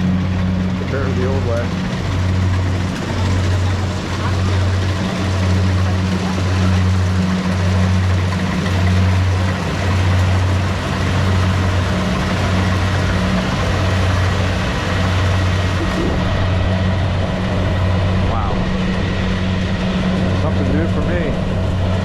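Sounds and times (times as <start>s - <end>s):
combine harvester engine droning: 0.0s - 22.0s.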